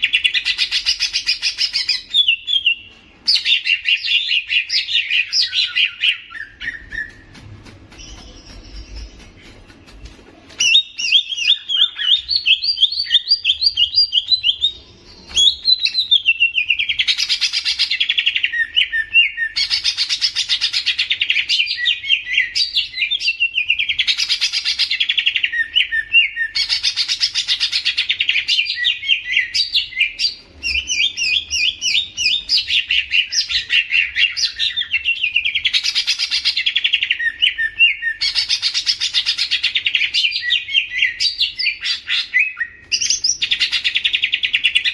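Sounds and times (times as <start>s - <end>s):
songbird singing chattering chirps: 0.0s - 20.2s.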